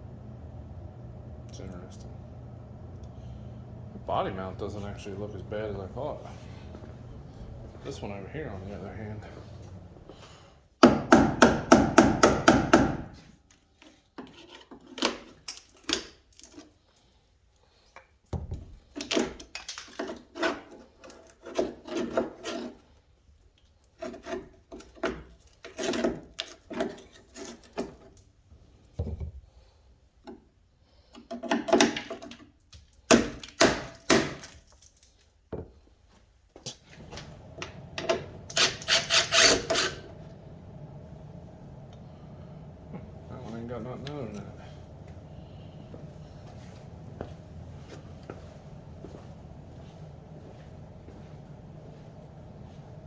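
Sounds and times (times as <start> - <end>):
scraping strokes by hand: 38.5 - 40.2.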